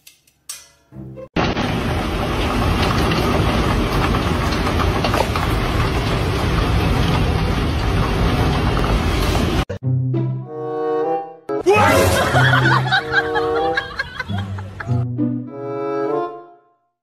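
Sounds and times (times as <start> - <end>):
heavy rain falling: 1.4 - 9.7.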